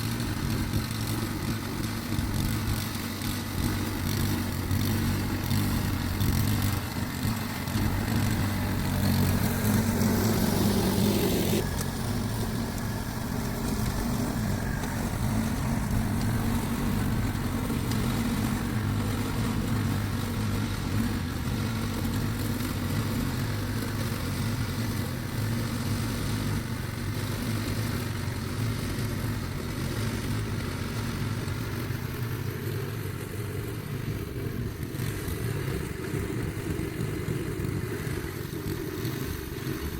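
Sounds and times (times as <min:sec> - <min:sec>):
rushing noise: 0:00.0 - 0:28.3
engine running: 0:00.0 - 0:39.9.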